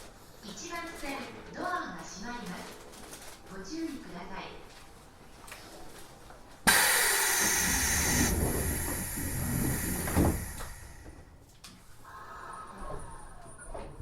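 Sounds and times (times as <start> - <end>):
thud: 6.7 - 11.2
compressed air hiss: 6.7 - 11.3.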